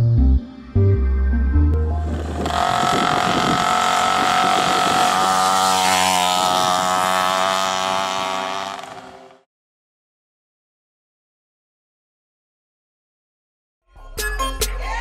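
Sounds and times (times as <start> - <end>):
two-stroke moped engine running: 1.9 - 9.4.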